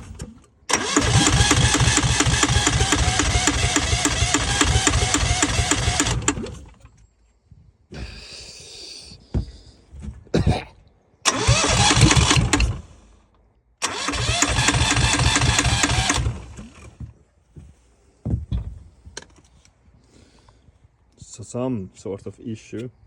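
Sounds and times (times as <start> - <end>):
diesel engine cranking: 0.0 - 7.0, 11.2 - 17.0.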